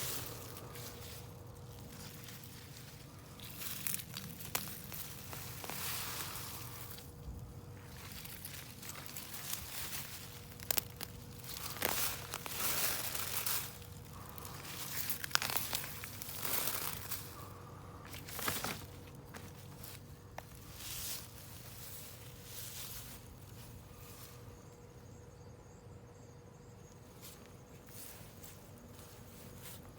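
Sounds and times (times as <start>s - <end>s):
soil and plants crunching and rustling: 0.0s - 25.0s, 26.8s - 29.9s.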